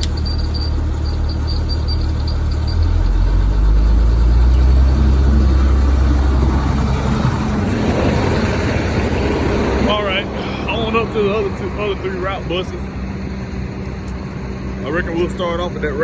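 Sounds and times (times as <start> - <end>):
diesel bus engine idling: 0.0 - 16.0.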